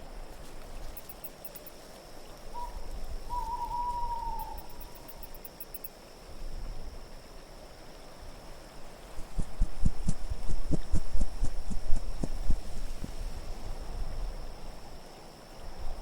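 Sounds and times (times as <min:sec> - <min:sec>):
owl hooting: 0:02.5 - 0:05.2
low wind rumble: 0:06.3 - 0:16.0.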